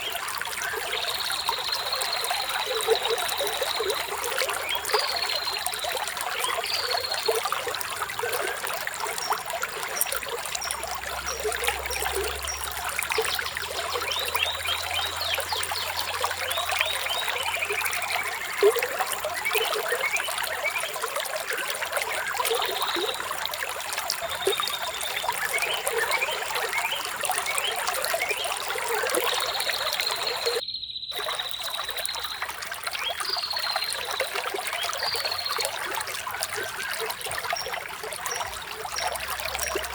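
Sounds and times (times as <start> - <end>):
birds chirping: 0.0 - 39.9
stream trickling: 0.0 - 39.9.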